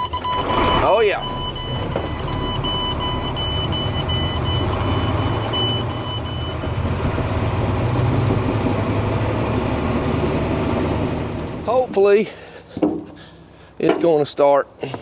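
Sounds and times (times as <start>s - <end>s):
rapid warning beep: 0.0s - 6.7s
diesel engine running: 0.0s - 12.6s.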